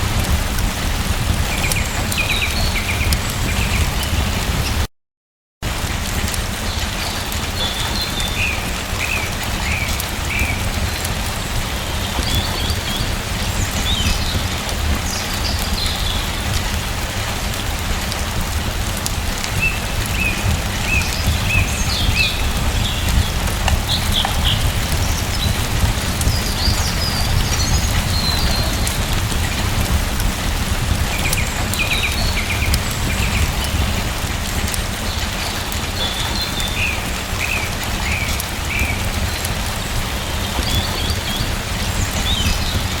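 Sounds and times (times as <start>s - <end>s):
steady rain: 0.0s - 4.9s, 5.6s - 43.0s
small birds chirping: 19.4s - 30.0s, 30.8s - 34.0s, 34.7s - 43.0s.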